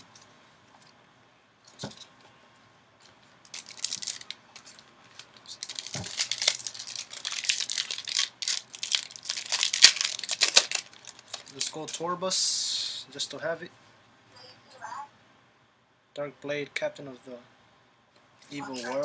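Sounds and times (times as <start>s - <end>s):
foil wrapper crinkling and tearing: 3.5s - 12.0s.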